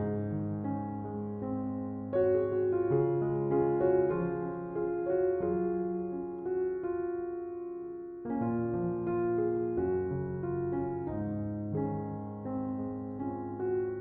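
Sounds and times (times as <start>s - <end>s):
slow calm piano music: 0.0s - 14.0s.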